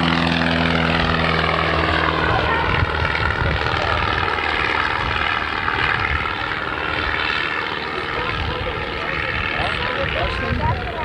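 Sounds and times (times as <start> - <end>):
propeller airplane engine droning: 0.0 - 11.0.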